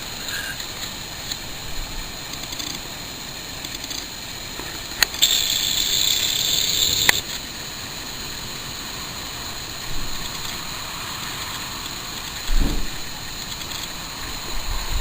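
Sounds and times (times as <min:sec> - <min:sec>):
high hiss: 0:00.0 - 0:15.0
sharp click: 0:05.0 - 0:07.4
wind on microphone: 0:12.5 - 0:13.3, 0:14.2 - 0:15.0.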